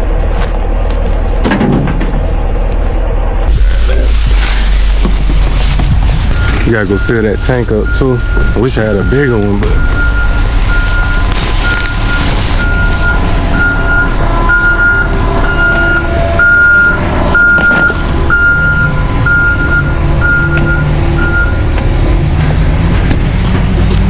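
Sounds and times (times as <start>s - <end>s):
vehicle engine rumble: 0.0s - 24.0s
vehicle warning beeper: 3.5s - 22.0s.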